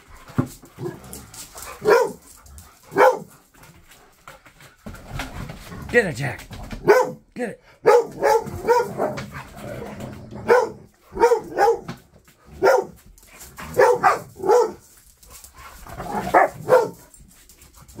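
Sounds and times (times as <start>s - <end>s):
dog barking: 1.8s - 2.2s, 2.9s - 3.3s, 6.8s - 7.2s, 7.8s - 9.2s, 10.4s - 12.0s, 12.6s - 13.0s, 13.6s - 14.8s, 16.0s - 17.0s.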